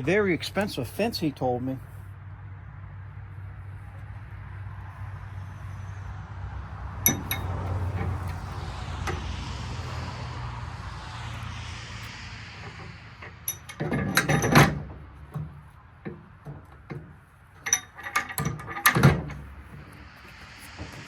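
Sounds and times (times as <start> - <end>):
low hum: 2.1 - 21.0
metal clinks and knocks: 7.0 - 9.3, 12.6 - 21.0.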